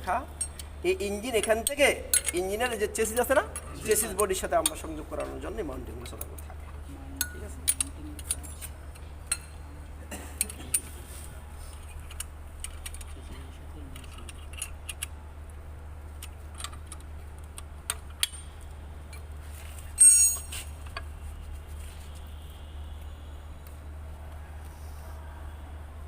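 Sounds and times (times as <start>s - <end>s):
tools and metal parts clinking: 0.3s - 9.6s, 14.0s - 15.1s, 17.9s - 21.1s.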